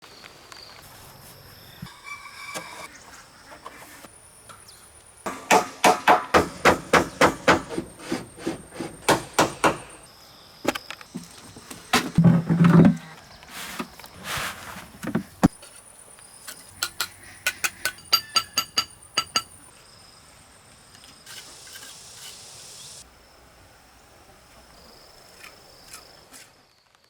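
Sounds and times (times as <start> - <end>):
hammer blows: 5.3 - 10.0.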